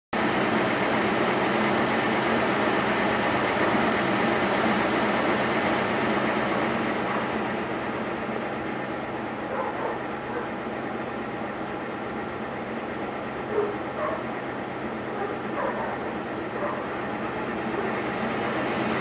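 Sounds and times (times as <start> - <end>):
engine idling with low hum: 0.2 - 19.0.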